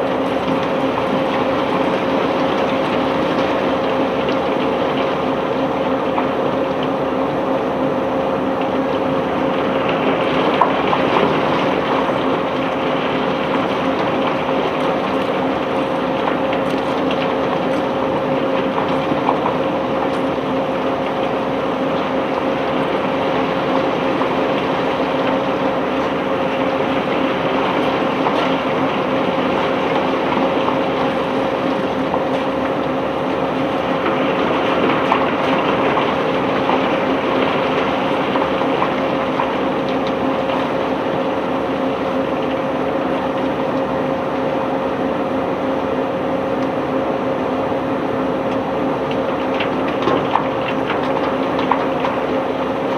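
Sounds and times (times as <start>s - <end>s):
machinery humming: 0.0s - 52.9s.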